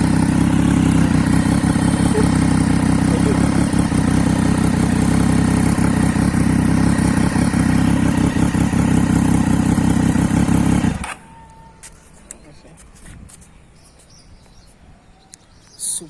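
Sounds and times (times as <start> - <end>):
motorcycle engine running steadily: 0.0 - 12.1.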